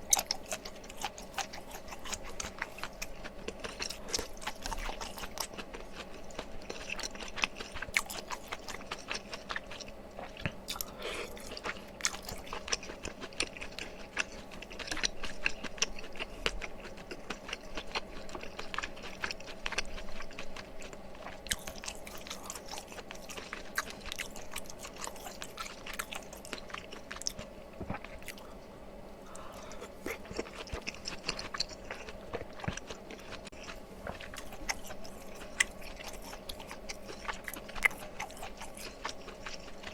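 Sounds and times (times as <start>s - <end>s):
person chewing food: 0.0s - 28.6s, 29.2s - 39.9s.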